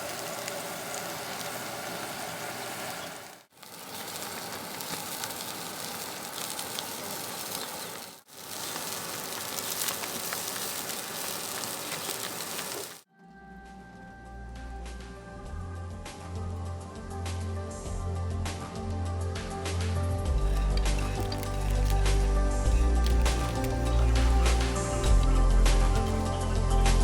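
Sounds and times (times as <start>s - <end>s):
food sizzling in hot oil: 0.0s - 13.0s, 20.3s - 27.0s
music: 13.1s - 27.0s.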